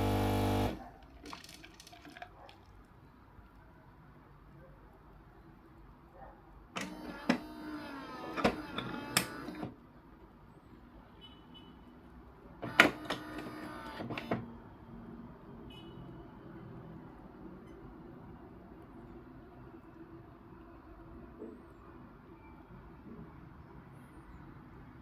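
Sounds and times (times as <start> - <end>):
coffee machine motor whirring: 0.0 - 0.8, 6.8 - 9.8, 12.7 - 14.4.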